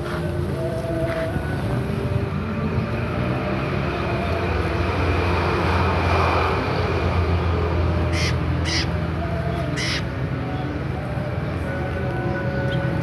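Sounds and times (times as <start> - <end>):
harsh bird calls: 8.0 - 10.2.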